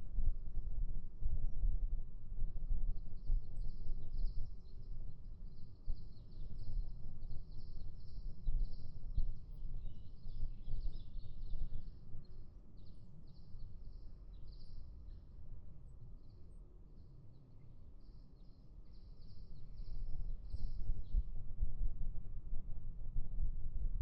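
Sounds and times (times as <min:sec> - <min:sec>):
wind rumbling on microphone: 0:00.0 - 0:13.3, 0:18.4 - 0:24.0.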